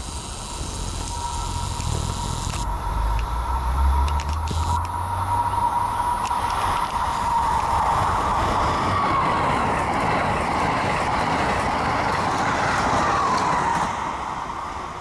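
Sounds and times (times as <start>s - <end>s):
high-speed train passing: 0.0s - 15.0s
whining tone: 0.3s - 10.2s.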